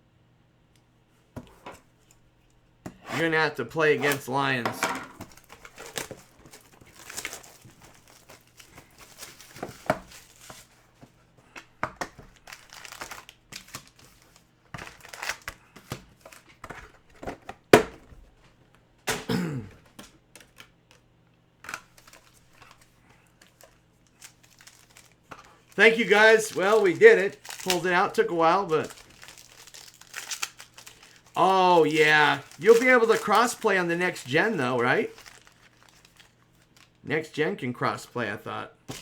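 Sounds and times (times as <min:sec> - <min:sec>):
plastic shrink-wrap tearing: 0:05.3 - 0:10.7, 0:12.3 - 0:16.5, 0:21.7 - 0:37.0.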